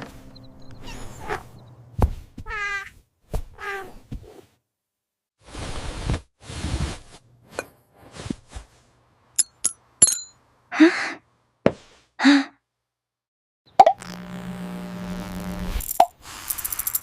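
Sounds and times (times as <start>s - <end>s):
high glassy clinks: 9.4s - 10.4s.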